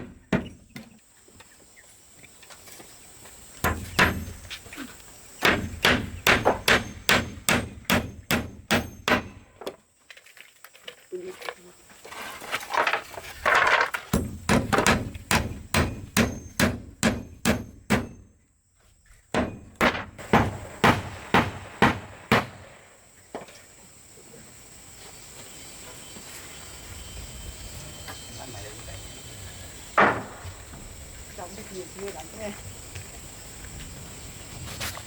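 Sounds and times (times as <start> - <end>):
rapid hammer blows: 19.4 - 22.7.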